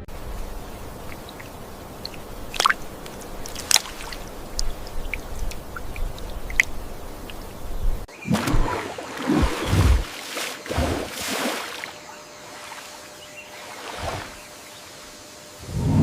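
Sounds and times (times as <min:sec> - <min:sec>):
water sloshing and splashing: 0:00.0 - 0:14.6
water dripping: 0:00.1 - 0:10.4.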